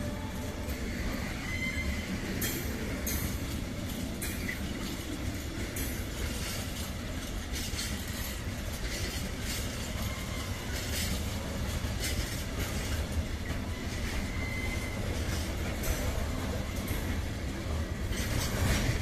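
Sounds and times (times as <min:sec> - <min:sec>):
rumble of train wheels on rails: 0:00.0 - 0:19.0
wheels clacking over rail joints: 0:00.0 - 0:19.0
faint wheel squeal: 0:00.8 - 0:02.8, 0:12.1 - 0:16.1.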